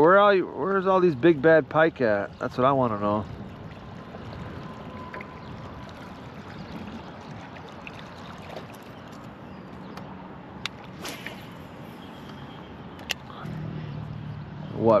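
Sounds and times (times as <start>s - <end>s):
water lapping against boat hull: 2.4s - 10.1s.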